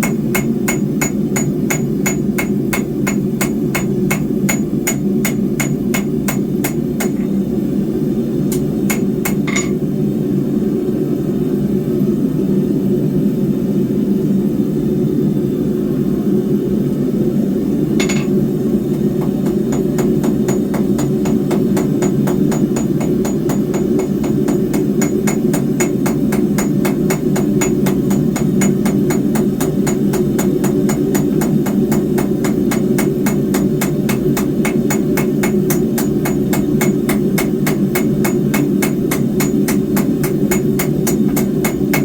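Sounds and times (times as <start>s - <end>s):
hammer striking steel on anvil: 0.0s - 7.4s, 8.5s - 9.8s, 18.0s - 42.0s.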